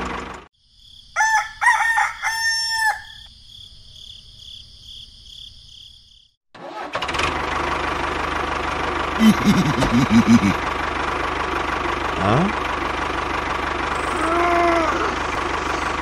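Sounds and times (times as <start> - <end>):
rooster crowing: 1.1 - 3.3
small motor running: 13.7 - 16.0.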